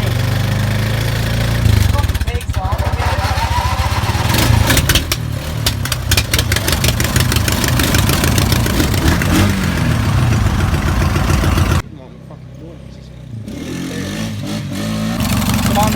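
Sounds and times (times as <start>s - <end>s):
tractor engine cranking: 0.0s - 11.8s
sharp pops and clicks: 4.7s - 9.4s.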